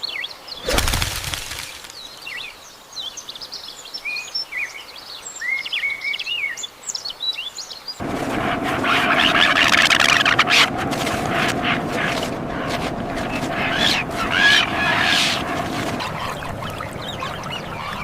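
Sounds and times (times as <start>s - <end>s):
dense noise with hum and clicks: 8.0s - 18.0s
small birds chirping: 8.0s - 18.0s.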